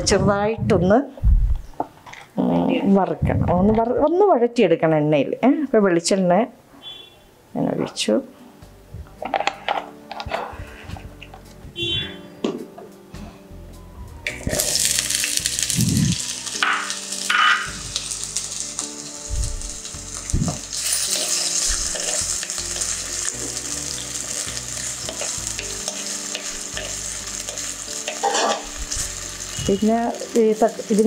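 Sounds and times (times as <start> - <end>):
potatoes sizzling in oil: 14.3 - 31.0
metal spoon scraping pot: 28.1 - 28.6.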